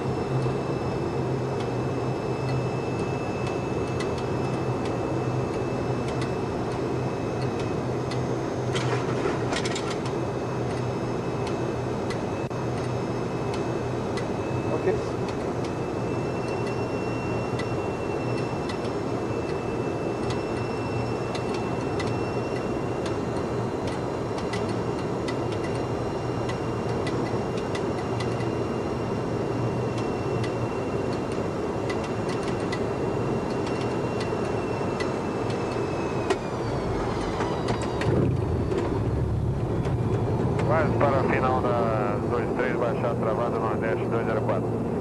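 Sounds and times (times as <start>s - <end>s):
high engine whine: 0.0s - 45.0s
jet engines and airflow rumble: 0.0s - 45.0s
deep rumble: 36.6s - 42.5s.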